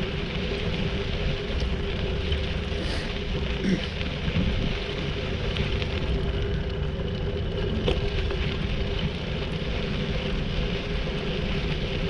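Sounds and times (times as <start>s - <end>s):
bicycle tyres rolling: 0.0s - 12.0s
wind noise on microphone: 4.1s - 6.8s.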